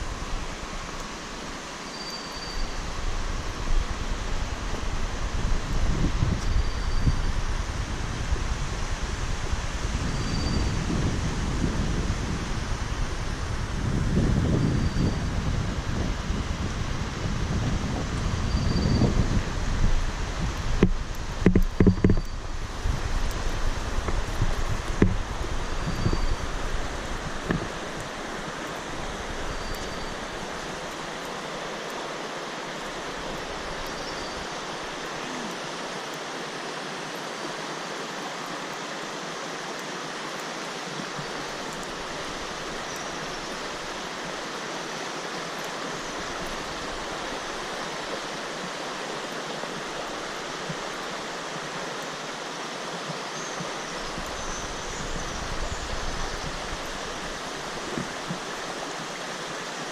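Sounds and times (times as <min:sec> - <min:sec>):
rushing water: 0:00.0 - 0:59.9
wind rumble on microphone: 0:02.6 - 0:31.2, 0:53.6 - 0:59.5.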